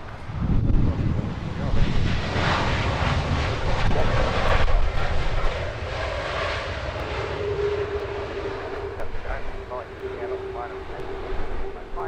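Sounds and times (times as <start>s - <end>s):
jet engines roaring: 0.0s - 12.0s
steady hum: 7.0s - 12.0s.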